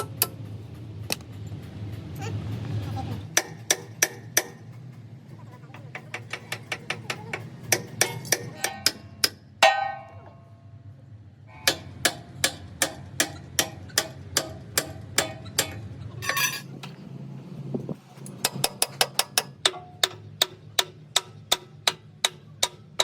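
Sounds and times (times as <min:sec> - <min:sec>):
hammer blows on metal: 0:06.0 - 0:10.6
metal clang ringing: 0:07.8 - 0:10.7, 0:15.2 - 0:16.7
low hum: 0:08.9 - 0:13.2.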